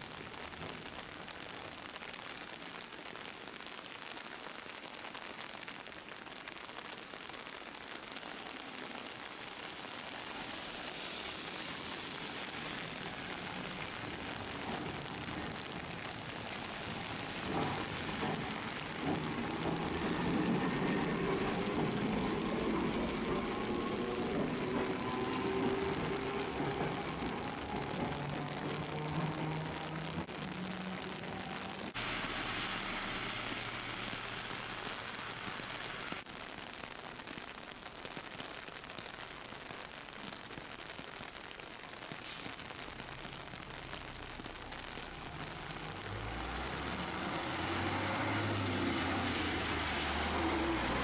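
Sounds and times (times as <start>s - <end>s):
steady rain falling: 0.0s - 51.0s
vehicle approaching: 44.8s - 51.0s.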